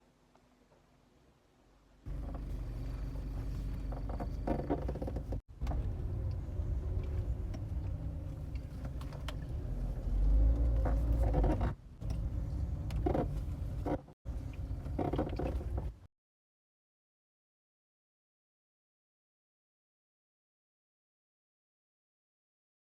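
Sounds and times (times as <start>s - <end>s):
car suspension squeaking: 2.1s - 5.4s, 10.2s - 14.2s
car rumbling: 2.1s - 16.1s.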